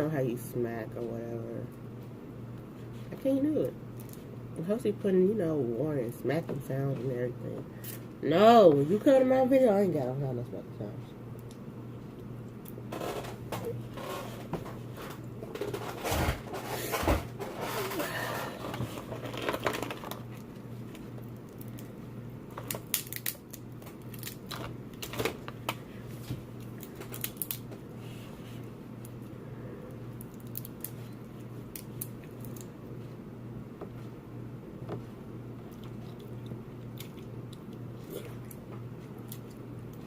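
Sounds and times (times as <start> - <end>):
steady low hum: 0.0 - 40.0
seafood shells cracking: 21.2 - 25.3, 26.7 - 27.7, 30.2 - 31.0, 31.7 - 32.7.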